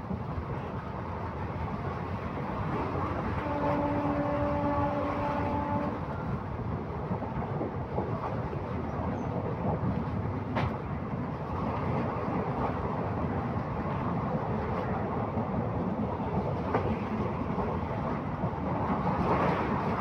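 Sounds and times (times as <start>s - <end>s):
train rumbling on track: 0.0s - 20.0s
train horn held note: 3.4s - 6.0s.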